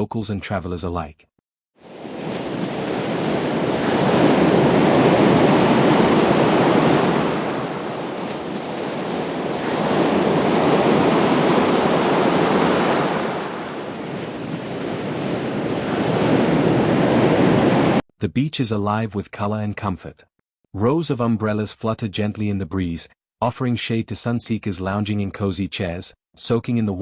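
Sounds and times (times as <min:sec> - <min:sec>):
waves breaking on sandy beach: 0:01.8 - 0:18.0.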